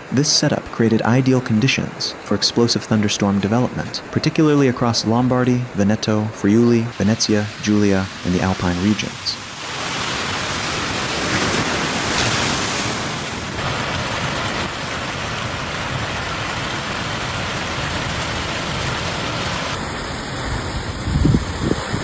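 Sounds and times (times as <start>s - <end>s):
pouring rain: 0.0s - 22.0s
wind gusts on microphone: 6.8s - 19.0s, 19.7s - 22.0s.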